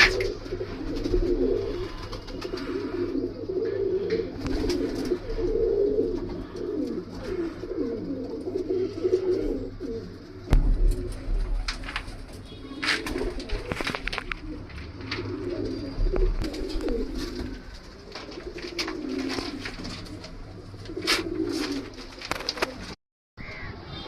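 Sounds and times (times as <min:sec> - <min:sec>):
pigeons cooing: 0:00.0 - 0:23.7.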